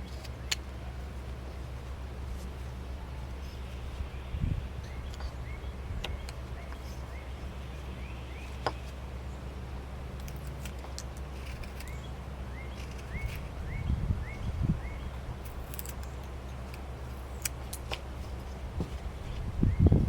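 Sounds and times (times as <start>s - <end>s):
steady low hum: 0.0s - 20.0s
knife carving wood: 8.4s - 13.8s, 15.4s - 19.4s.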